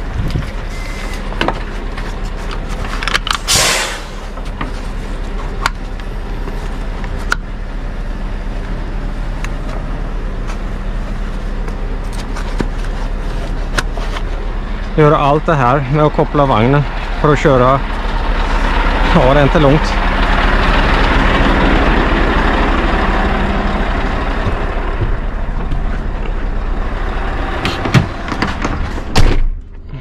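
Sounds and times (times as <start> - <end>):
road noise: 0.0 - 30.0
truck engine droning: 0.0 - 30.0
short hiss: 3.5 - 4.2.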